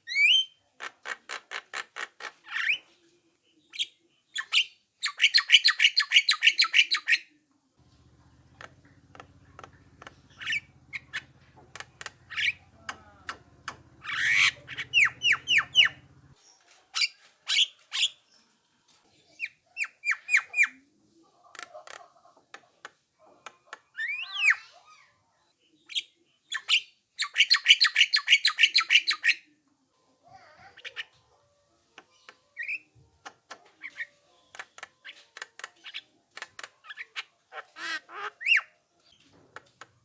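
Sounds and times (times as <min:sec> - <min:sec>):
myna bird calling: 0:07.9 - 0:16.4.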